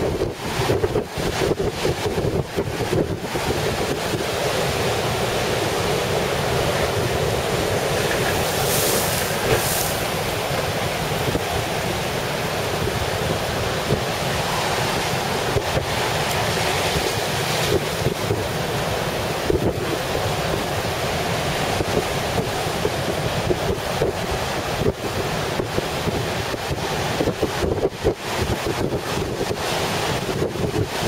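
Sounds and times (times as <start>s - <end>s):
storm surf on shore: 0.0s - 31.0s
strong wind: 0.0s - 31.0s
wind buffeting microphone: 0.0s - 31.0s
hissing wave surges: 7.6s - 12.4s.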